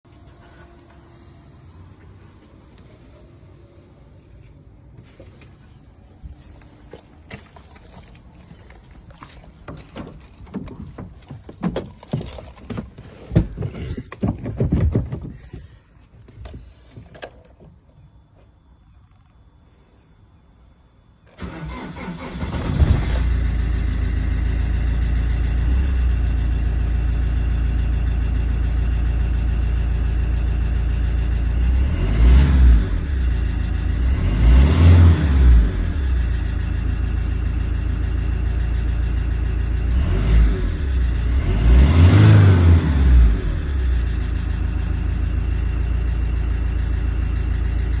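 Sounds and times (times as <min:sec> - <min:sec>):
diesel engine starting and idling: 0:21.3 - 0:48.0.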